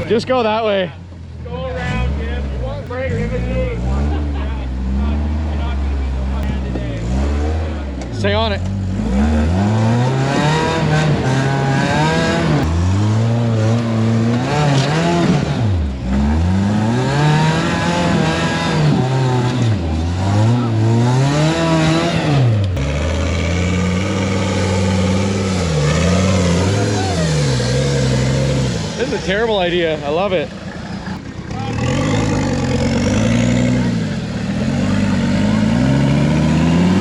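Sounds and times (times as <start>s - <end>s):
truck engine revving hard: 1.7s - 37.0s.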